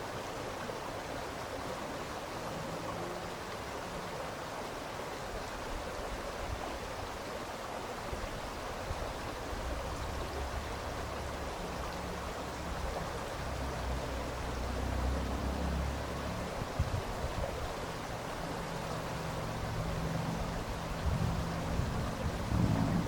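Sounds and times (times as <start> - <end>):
stream water rushing: 0.0 - 23.0
low rumble: 19.8 - 23.0.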